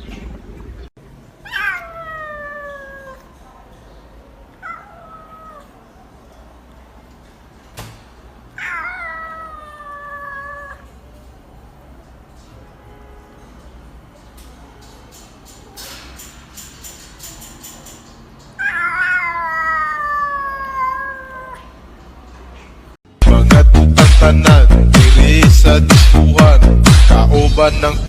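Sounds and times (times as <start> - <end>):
cat meowing: 1.4 - 3.3, 4.6 - 5.8, 8.6 - 11.0, 18.6 - 21.8.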